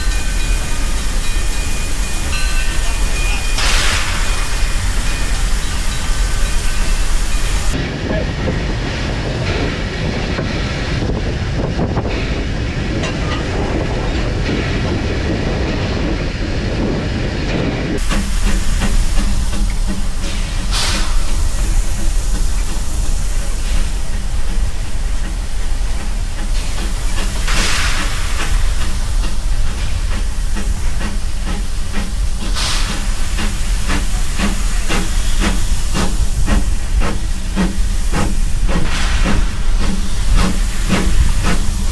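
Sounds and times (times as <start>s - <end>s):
bursts of hissing steam: 0.0s - 7.8s, 18.0s - 41.9s
steam locomotive hissing and rumbling: 0.0s - 41.9s.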